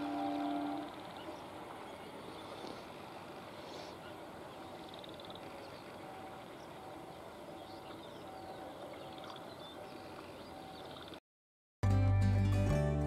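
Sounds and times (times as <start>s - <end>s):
distant train running: 0.0s - 5.3s
birds chirping: 0.0s - 11.2s.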